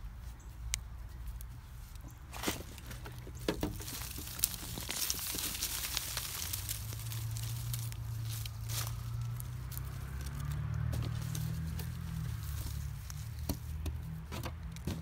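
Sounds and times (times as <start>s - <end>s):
hands rustling and scraping soil: 0.0s - 15.0s
small clicks and knocks: 9.7s - 15.0s.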